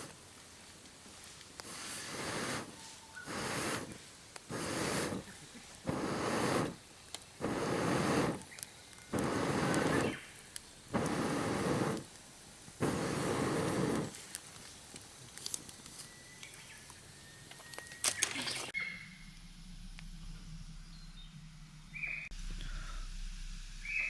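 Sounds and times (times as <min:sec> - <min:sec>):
air blown into campfire: 0:00.0 - 0:16.0
campfire crackling: 0:00.0 - 0:18.7
faint thin whistle: 0:02.5 - 0:03.8, 0:15.9 - 0:19.2.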